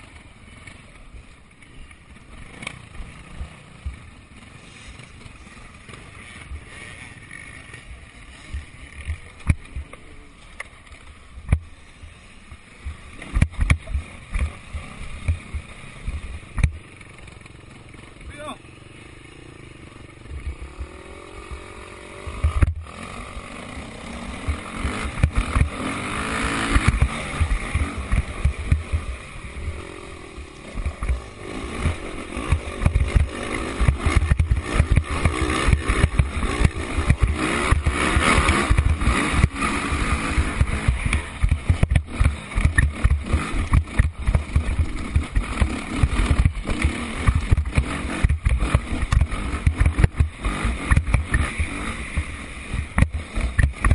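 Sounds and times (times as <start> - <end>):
dirt bike engines revving: 0.0 - 53.9
sharp click: 53.0 - 53.9.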